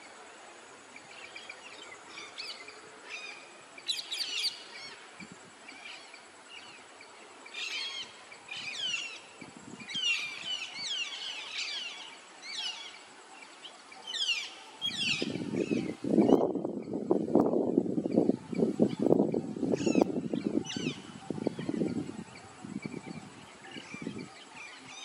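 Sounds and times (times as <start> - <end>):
faint steady background hiss: 0.0 - 25.0
birds chirping: 5.9 - 25.0.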